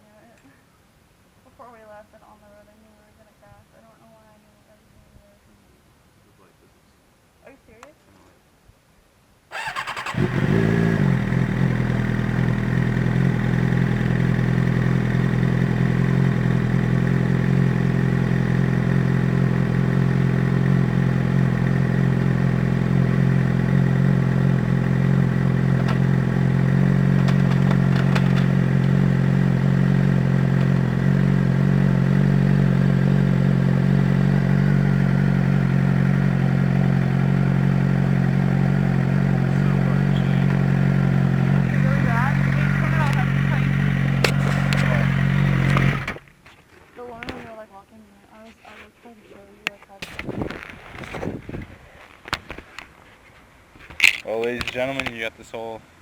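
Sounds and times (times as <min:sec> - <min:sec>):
motorcycle engine idling: 0:09.5 - 0:46.3.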